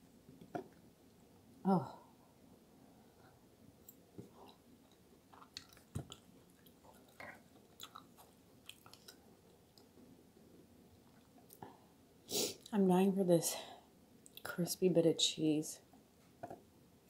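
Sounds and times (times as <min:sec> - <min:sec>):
chewing soft food: 0:03.8 - 0:10.0, 0:10.9 - 0:11.6.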